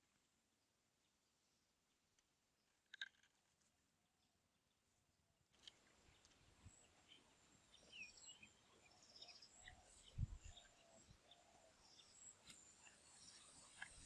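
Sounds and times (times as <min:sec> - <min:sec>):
small birds chirping: 0:04.0 - 0:14.0.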